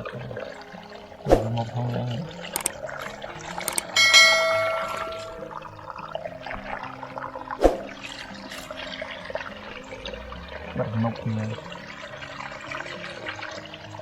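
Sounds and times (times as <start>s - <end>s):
shallow water trickling: 0.0s - 14.0s
bell-like ringing tone: 3.7s - 5.6s.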